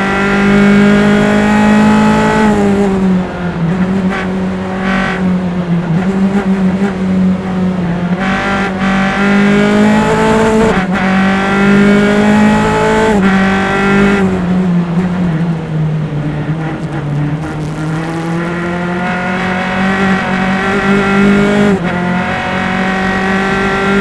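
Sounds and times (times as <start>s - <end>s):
race car engine revving: 0.0s - 24.0s
sharp gear upshifts: 0.0s - 24.0s.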